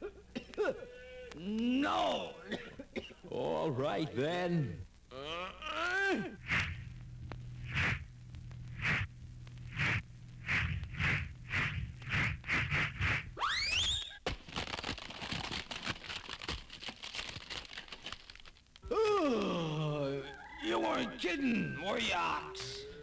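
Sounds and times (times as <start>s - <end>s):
low steady hum: 0.0s - 14.3s
crackling noise: 0.0s - 23.0s
comic whooshes: 6.4s - 6.8s, 7.6s - 8.1s, 8.8s - 9.1s, 9.7s - 13.4s.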